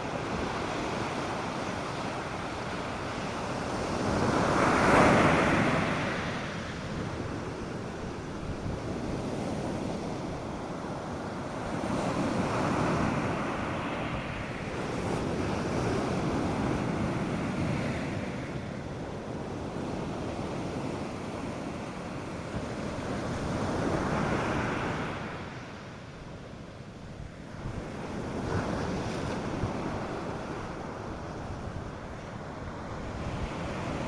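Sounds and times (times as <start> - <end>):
surf breaking on sandy beach: 0.0 - 25.6.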